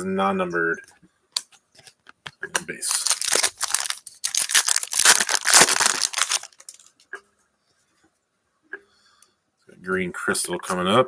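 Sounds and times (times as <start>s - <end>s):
foil wrapper tearing and crinkling: 2.8s - 7.0s.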